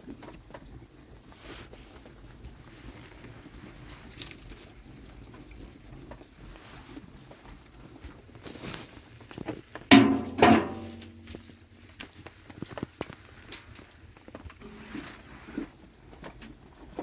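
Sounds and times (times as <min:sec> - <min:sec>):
small clicks and handling noise: 0:01.6 - 0:09.9
sharp knocks: 0:09.9 - 0:11.6.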